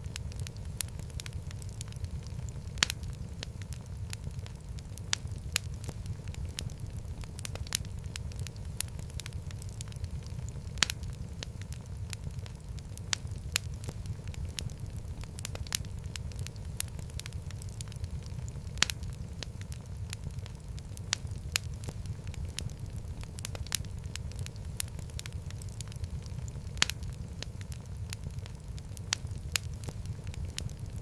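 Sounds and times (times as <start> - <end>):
fire burning low rumble: 0.0 - 31.0
fire crackling and popping: 0.0 - 31.0.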